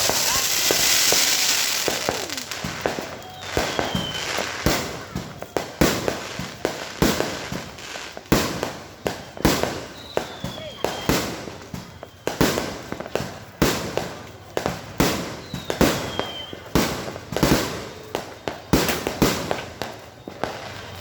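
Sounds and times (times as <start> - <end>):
firework whistle falling in pitch: 0.0 - 4.5
fireworks bangs and crackle: 0.0 - 21.0.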